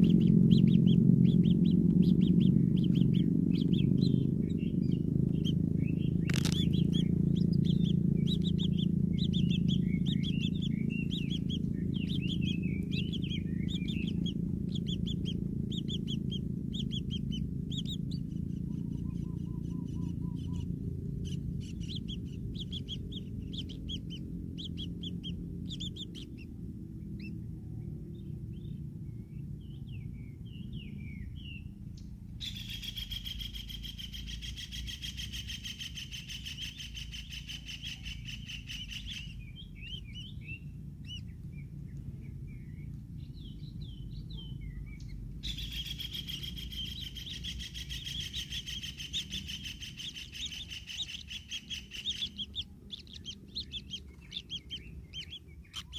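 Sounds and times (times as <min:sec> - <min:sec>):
fast rasping buzz: 0:00.0 - 0:19.0
low rumble: 0:00.0 - 0:33.0, 0:33.7 - 0:55.9
birds chirping: 0:00.0 - 0:55.9.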